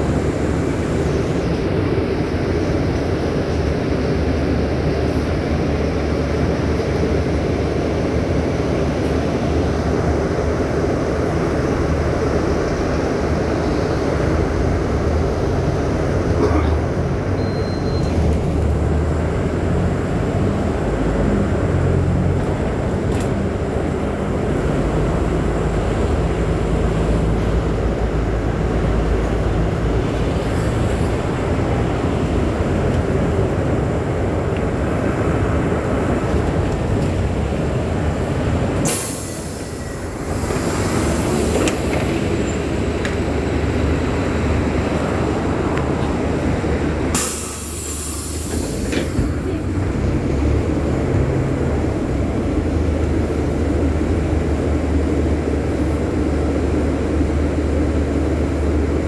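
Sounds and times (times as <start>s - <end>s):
bus engine running: 0.0s - 59.0s
road and body noise: 0.0s - 59.0s
compressed air hiss: 38.8s - 42.2s, 47.1s - 49.4s.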